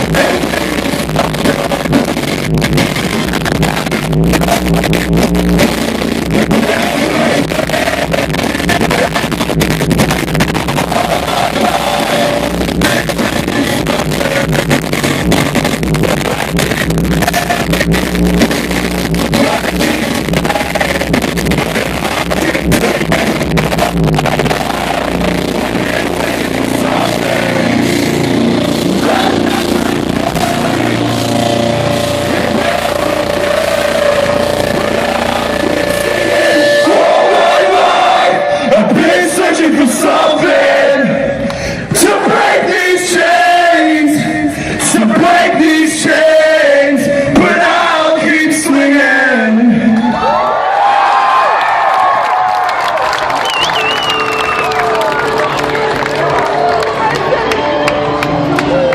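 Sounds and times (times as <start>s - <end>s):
drum kit: 0.0s - 39.2s
electric guitars: 0.0s - 43.2s, 49.7s - 58.9s.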